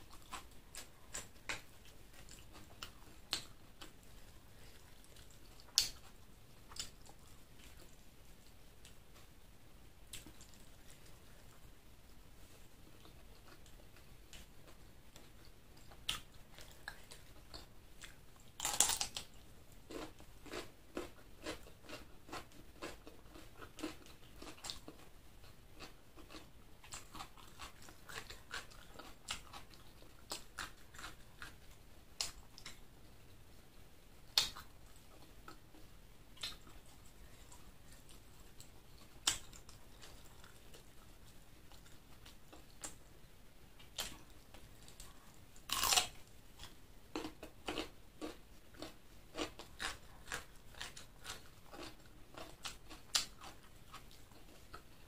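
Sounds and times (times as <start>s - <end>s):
chewing and biting: 15.9s - 32.8s, 44.9s - 55.0s.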